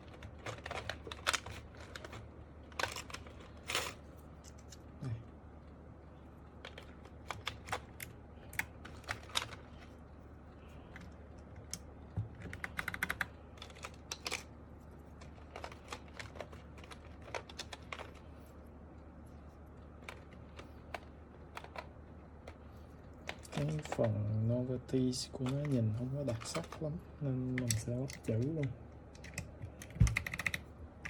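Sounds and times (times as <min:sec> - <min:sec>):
plastic keycaps clicking: 0:12.4 - 0:14.4, 0:29.1 - 0:30.7.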